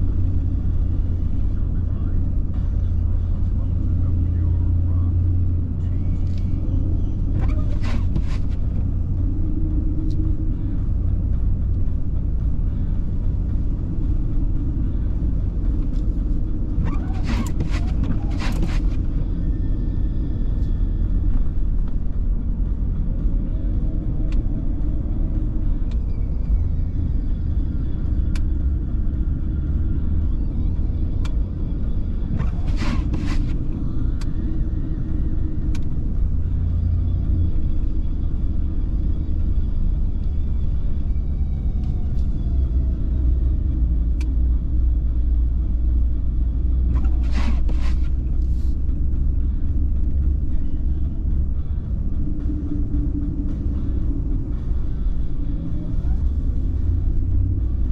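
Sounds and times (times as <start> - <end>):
car road and engine rumble: 0.0 - 57.9
scraping bursts: 7.4 - 8.9, 16.8 - 19.1, 32.3 - 33.6, 46.9 - 48.7.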